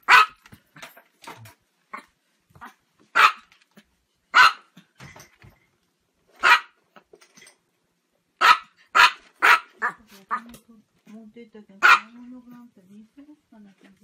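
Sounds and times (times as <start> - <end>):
small dog barking: 0.0 - 0.4, 1.9 - 3.5, 4.3 - 4.7, 6.4 - 6.8, 8.4 - 10.5, 11.8 - 12.2.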